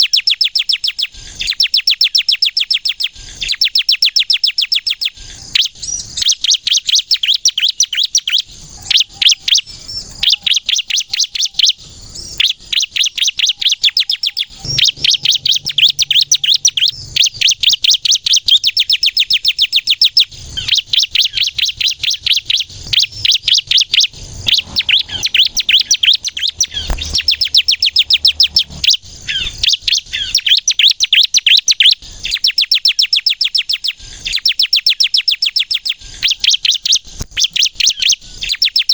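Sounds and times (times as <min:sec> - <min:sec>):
bird singing high chirps: 0:00.0 - 0:38.9.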